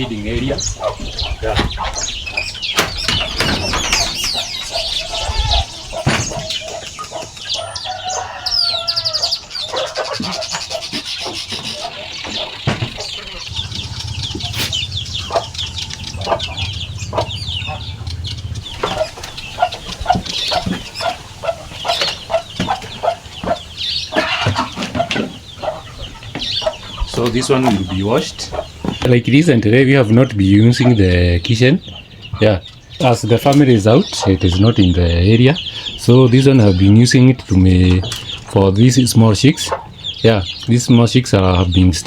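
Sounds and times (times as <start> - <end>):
chicken clucking: 0.0 - 42.0
chicks peeping: 0.0 - 42.0
knocks and scrapes: 10.1 - 29.1.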